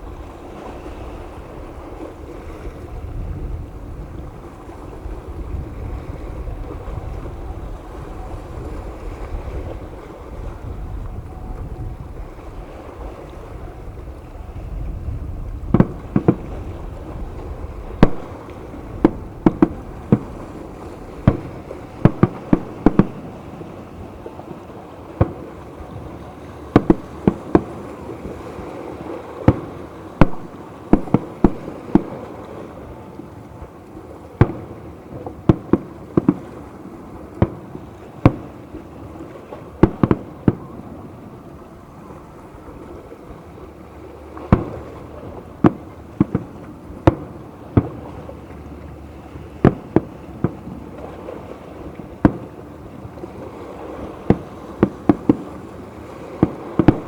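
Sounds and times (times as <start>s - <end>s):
steady background noise: 0.0s - 57.0s
fireworks bangs: 15.7s - 26.1s, 26.7s - 28.4s, 29.0s - 33.0s, 34.4s - 36.6s, 37.4s - 41.2s, 44.4s - 48.2s, 49.6s - 57.0s.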